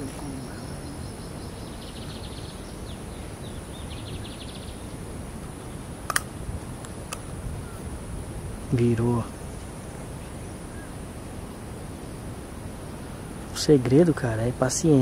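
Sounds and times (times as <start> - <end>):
bird chirps: 0.0 - 5.9
steady background hiss: 0.0 - 15.0
sharp clicks: 6.0 - 7.3.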